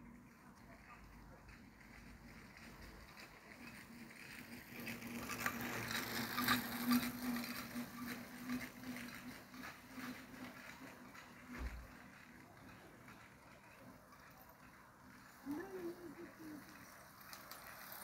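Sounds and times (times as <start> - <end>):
train wheels clicking over rails: 1.1 - 18.0.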